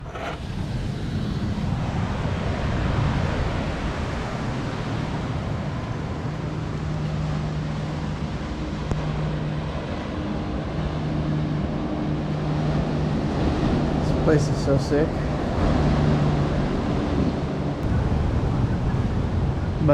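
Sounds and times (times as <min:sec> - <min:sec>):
boat engine humming: 0:00.0 - 0:19.9
water noise: 0:00.0 - 0:19.9
wind: 0:00.0 - 0:19.9.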